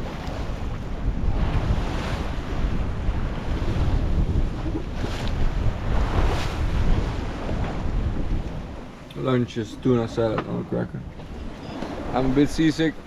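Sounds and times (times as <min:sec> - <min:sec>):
sea water washing: 0:00.0 - 0:13.0
wind buffeting microphone: 0:00.0 - 0:13.0.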